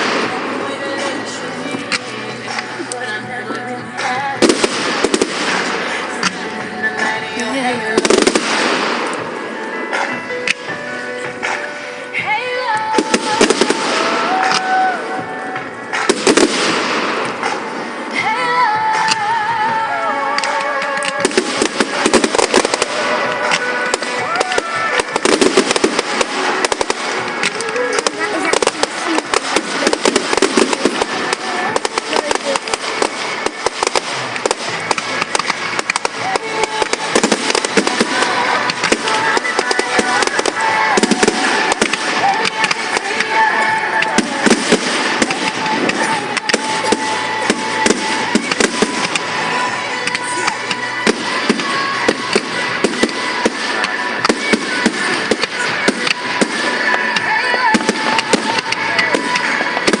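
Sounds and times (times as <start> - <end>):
fireworks cracks and pops: 0.0 - 60.0
continuous crackle: 20.3 - 60.0.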